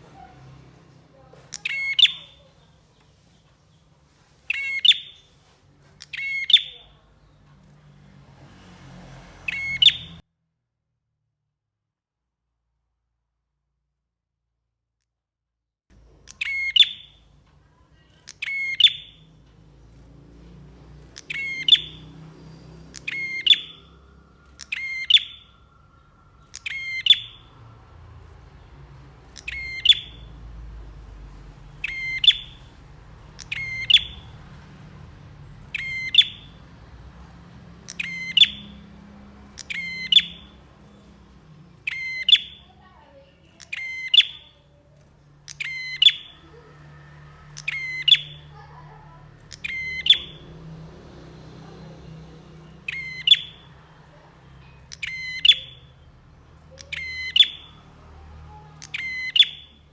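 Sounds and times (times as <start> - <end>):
faint low rumble: 15.9 - 58.7.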